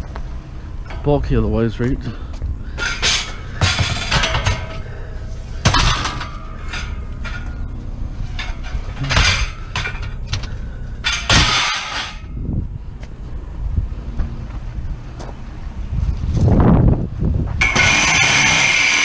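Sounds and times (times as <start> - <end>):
low rumble: 0.0 - 17.9
scrap metal clanking: 2.0 - 12.4, 17.6 - 19.0
scrap rattling clatter: 2.0 - 12.4, 17.5 - 19.0.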